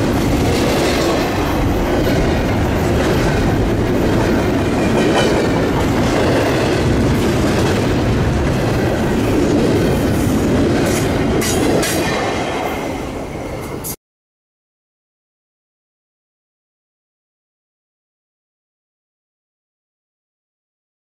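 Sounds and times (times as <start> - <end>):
freight train wheels rumbling on rails: 0.0 - 14.0.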